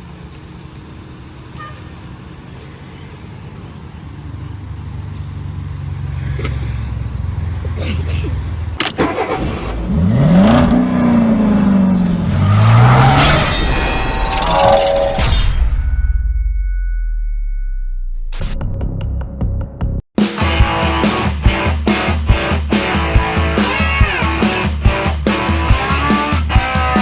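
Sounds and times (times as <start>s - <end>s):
low car rumble: 0.0s - 14.4s
car engine revving: 1.4s - 14.6s, 20.4s - 27.0s
sharp hit: 13.0s - 18.7s, 20.2s - 27.0s.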